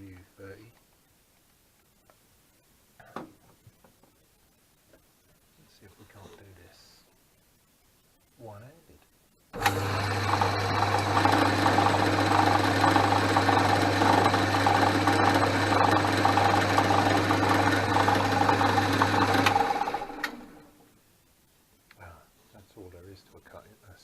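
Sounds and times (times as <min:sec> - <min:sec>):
drill boring into metal bar: 0:09.6 - 0:20.6
lathe running with low hum: 0:09.6 - 0:20.7.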